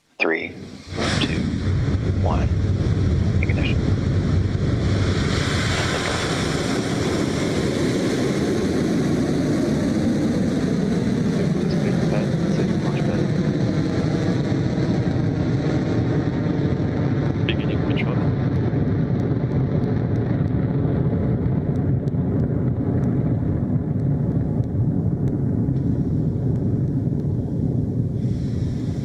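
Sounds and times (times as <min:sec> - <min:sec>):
rocket engine roar: 0:00.2 - 0:29.0.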